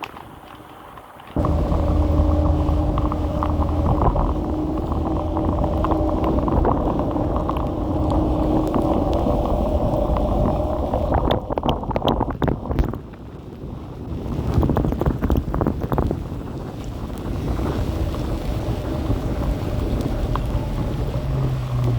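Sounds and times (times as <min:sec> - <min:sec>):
electric scooter motor hum: 0:01.4 - 0:12.3, 0:16.4 - 0:21.9
road rumble: 0:01.4 - 0:12.9, 0:15.1 - 0:21.9.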